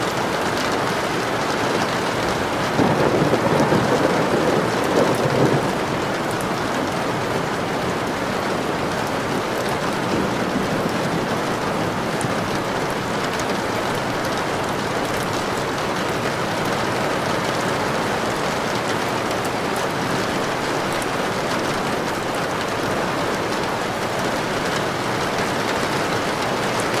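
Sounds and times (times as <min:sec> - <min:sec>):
heavy rain falling: 0:00.0 - 0:27.0
thunder rumble: 0:02.3 - 0:16.9.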